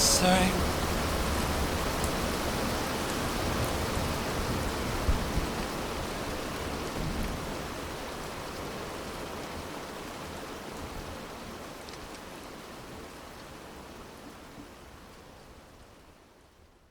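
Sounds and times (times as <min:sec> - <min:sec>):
rain hiss: 0:00.0 - 0:13.4.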